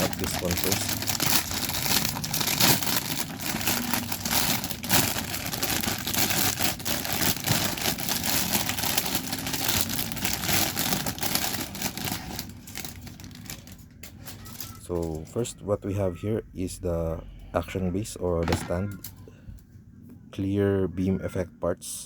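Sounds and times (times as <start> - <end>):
plastic bag crinkling: 0.0 - 15.2.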